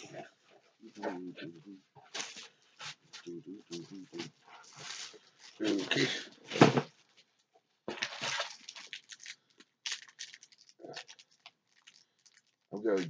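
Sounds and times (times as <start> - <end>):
cardboard crinkling and tearing: 3.7 - 6.9, 7.9 - 13.0.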